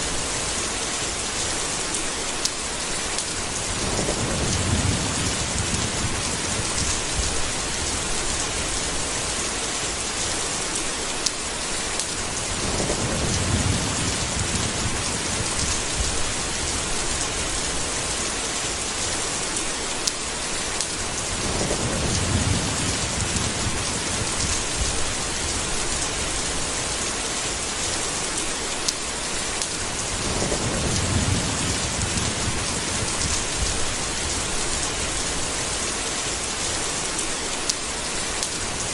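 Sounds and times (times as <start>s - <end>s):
heavy rain: 0.0s - 38.9s
thunder rolling: 3.6s - 8.1s, 12.4s - 17.2s, 21.3s - 25.8s, 30.0s - 35.1s.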